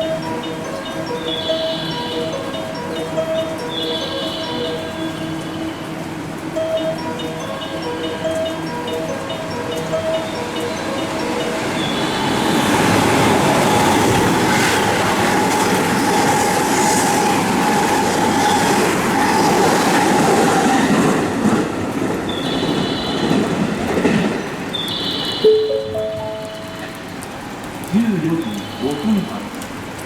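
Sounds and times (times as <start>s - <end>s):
train wheels rumbling on rails: 3.0s - 30.0s.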